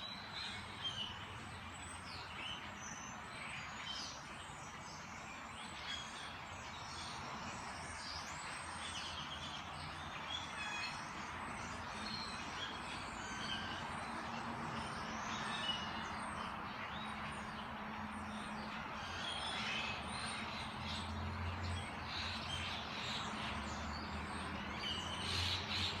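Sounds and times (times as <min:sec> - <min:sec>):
birds chirping and calling: 0:18.2 - 0:26.0.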